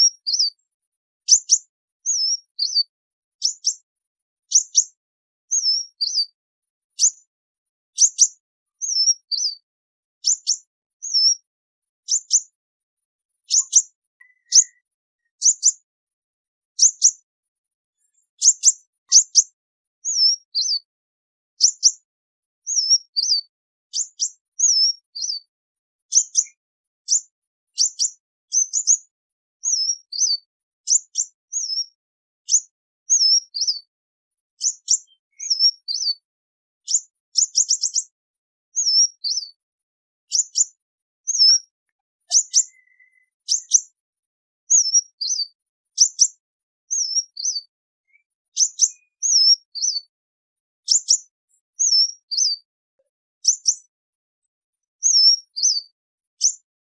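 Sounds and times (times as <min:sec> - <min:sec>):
sunbird high chirps: 0:00.0 - 0:00.6, 0:01.2 - 0:03.8, 0:04.5 - 0:07.3, 0:08.0 - 0:11.5, 0:12.1 - 0:12.5, 0:13.4 - 0:15.9, 0:16.8 - 0:17.2, 0:18.0 - 0:20.9, 0:22.6 - 0:25.5, 0:26.1 - 0:29.0, 0:29.6 - 0:33.9, 0:34.6 - 0:36.2, 0:36.8 - 0:38.2, 0:38.8 - 0:39.6, 0:40.3 - 0:43.9, 0:44.7 - 0:46.3, 0:46.9 - 0:50.1, 0:50.8 - 0:52.7, 0:53.4 - 0:53.9, 0:55.0 - 0:56.6.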